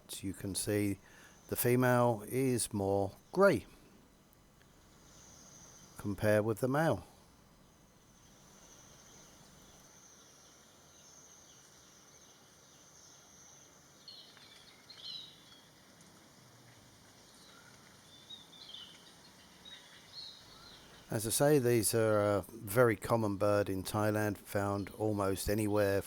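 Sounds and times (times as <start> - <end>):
bird chirps: 8.6 - 15.7, 17.3 - 21.2.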